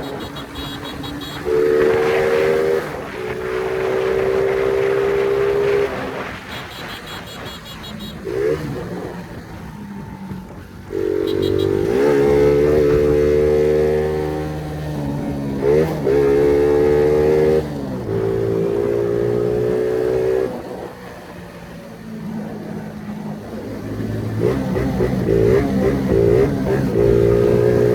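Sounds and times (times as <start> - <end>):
motorcycle engine revving high: 0.0 - 10.2, 10.9 - 20.6.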